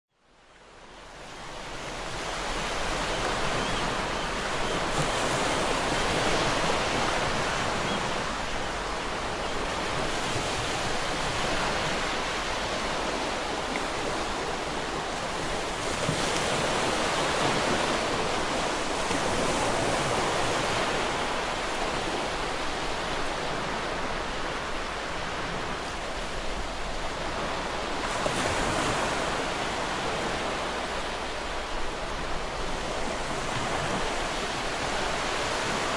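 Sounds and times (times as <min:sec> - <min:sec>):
ocean waves breaking on rocks: 0:01.6 - 0:35.9.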